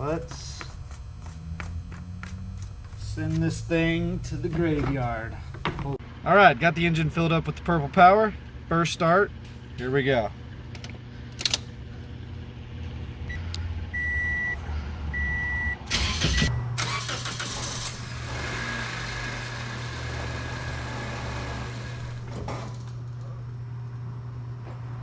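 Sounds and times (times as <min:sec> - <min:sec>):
car engine cranking and idling: 0:06.0 - 0:23.2
short electronic beeps: 0:13.3 - 0:16.8.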